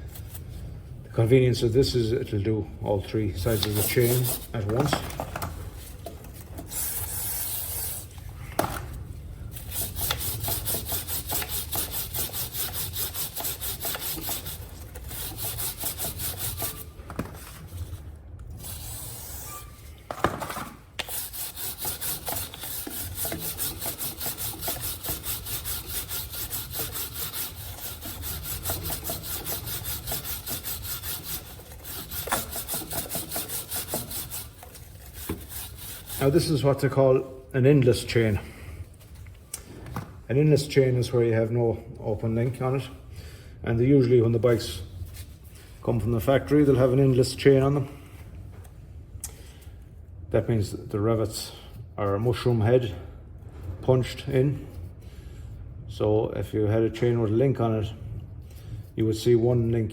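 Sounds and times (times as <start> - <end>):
brush scrubbing drive chain: 3.4 - 4.9, 9.5 - 16.9, 21.0 - 36.8.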